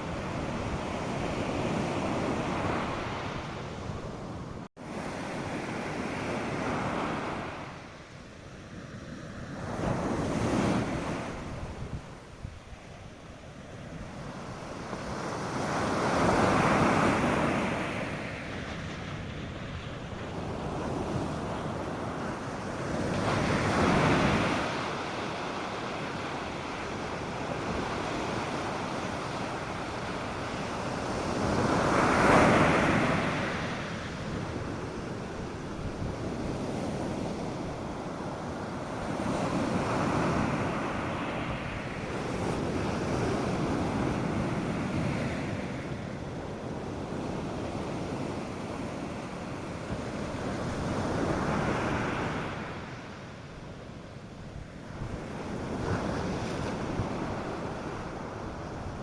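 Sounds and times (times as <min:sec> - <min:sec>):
waves breaking on a beach: 0:00.0 - 0:59.0
wind rumble on microphone: 0:00.0 - 0:59.0.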